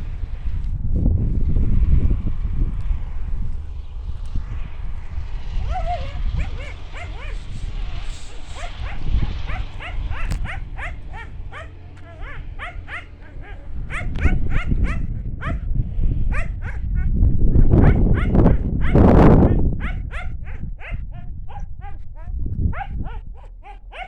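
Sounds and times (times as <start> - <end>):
low rumble: 0.0 - 24.0
animal high-pitched cries: 5.6 - 15.6.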